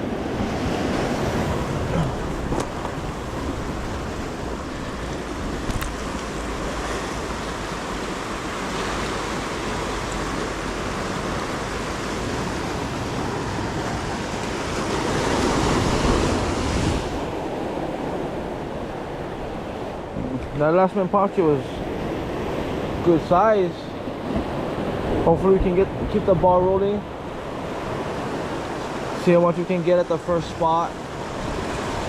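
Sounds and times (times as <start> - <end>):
wind buffeting microphone: 0.0 - 20.5
ocean waves washing ashore: 0.0 - 32.0.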